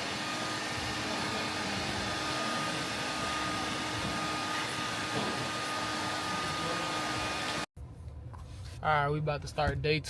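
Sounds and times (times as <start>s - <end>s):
blower rushing air: 0.0s - 7.7s.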